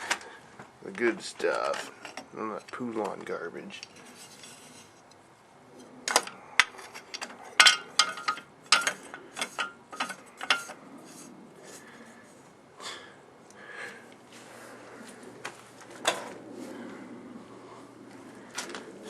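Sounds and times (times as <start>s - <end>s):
metallic clanks and rattles: 1.2s - 3.2s, 6.1s - 10.8s.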